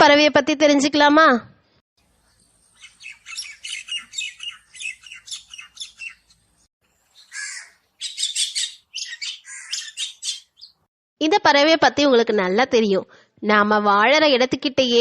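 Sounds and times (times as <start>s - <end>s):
myna chattering and squawking: 2.2s - 6.4s, 7.2s - 10.8s.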